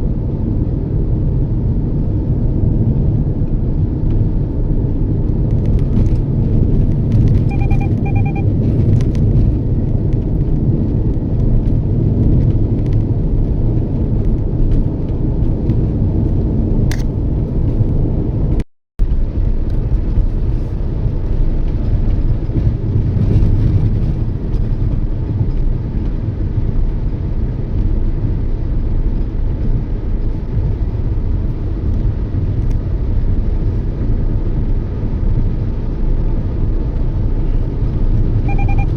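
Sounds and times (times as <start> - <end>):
road and engine rumble: 0.0 - 38.9
short electronic beeps: 7.4 - 8.6, 38.4 - 38.9.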